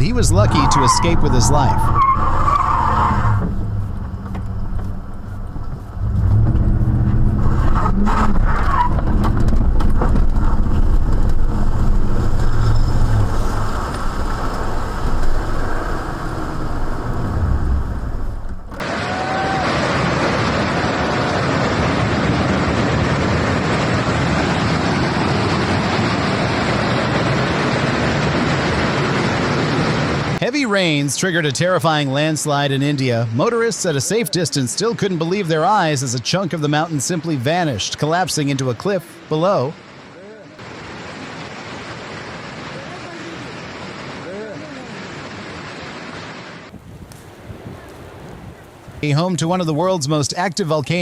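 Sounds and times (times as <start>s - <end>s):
car engine humming: 0.0s - 19.6s
steady rushing noise: 0.0s - 51.0s.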